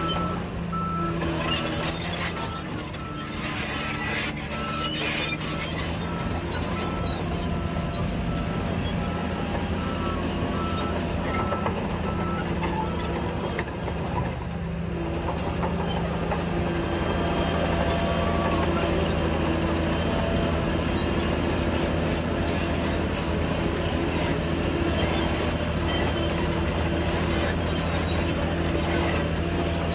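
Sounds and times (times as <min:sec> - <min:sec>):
reversing alarm beeping: 0:00.0 - 0:13.8
heavy diesel engine running: 0:00.0 - 0:29.9.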